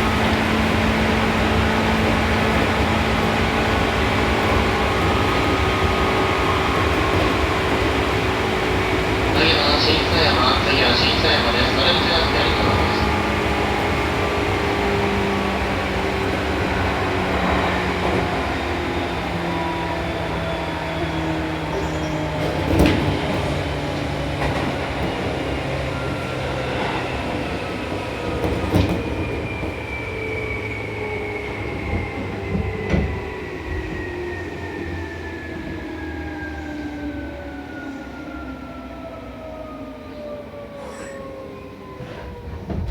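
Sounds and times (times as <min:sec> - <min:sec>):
rail joint clacks: 0:00.0 - 0:15.4, 0:21.7 - 0:29.7, 0:40.8 - 0:42.9
wheel and track rumble: 0:00.0 - 0:40.0, 0:41.8 - 0:42.9.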